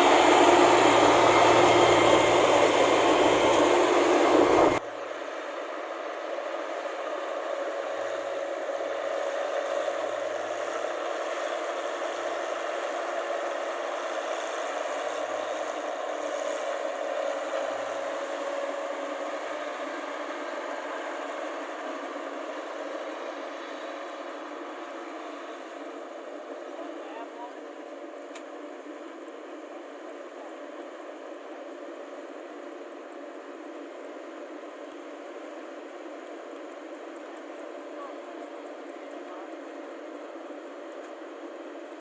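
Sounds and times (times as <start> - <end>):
combine harvester running: 0.0 - 27.9.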